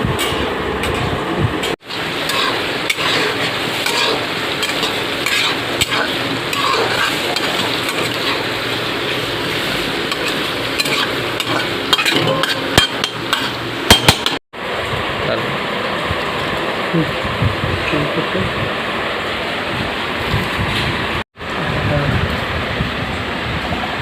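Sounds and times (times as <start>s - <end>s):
food sizzling in oil: 1.8s - 14.4s
spoon scraping a pan: 2.2s - 9.2s, 10.1s - 14.2s.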